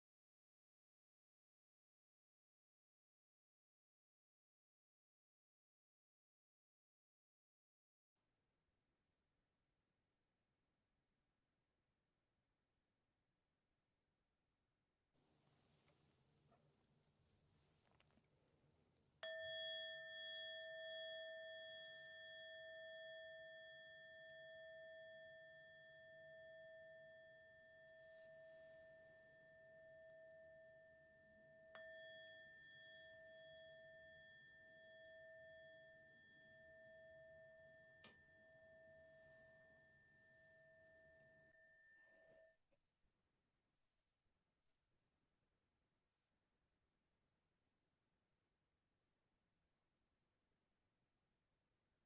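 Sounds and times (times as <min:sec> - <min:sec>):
meditation bell ringing: 0:19.2 - 0:42.6.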